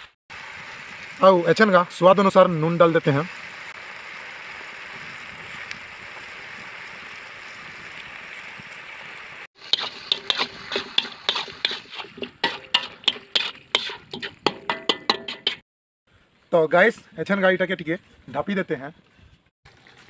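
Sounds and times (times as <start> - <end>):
food sizzling in hot oil: 0.0 - 15.6
spatula scraping wok: 9.6 - 15.6.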